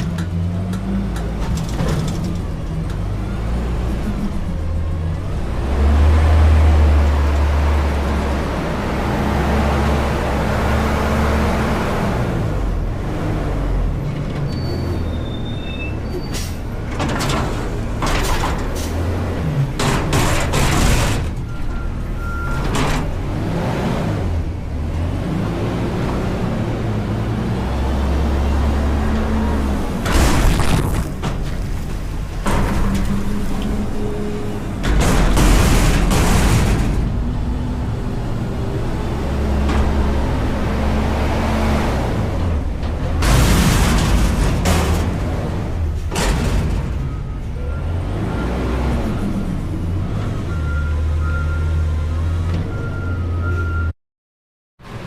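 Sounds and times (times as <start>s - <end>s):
diesel truck engine revving: 2.4s - 14.1s, 22.1s - 46.0s, 47.7s - 53.8s.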